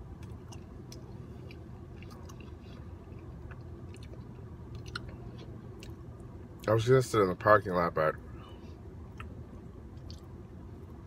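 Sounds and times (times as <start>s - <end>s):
steady low hum: 0.0s - 11.0s
person chewing food: 0.1s - 6.3s
mouth clicks and crunches: 0.2s - 6.0s.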